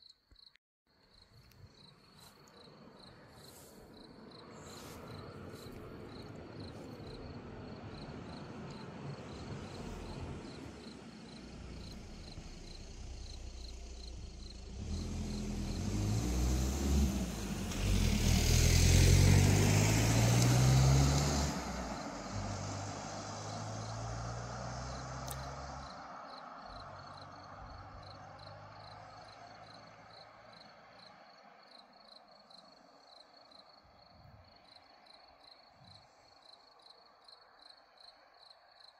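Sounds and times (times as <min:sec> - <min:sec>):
crickets chirping: 0:00.0 - 0:38.9
car driving past: 0:02.2 - 0:33.0.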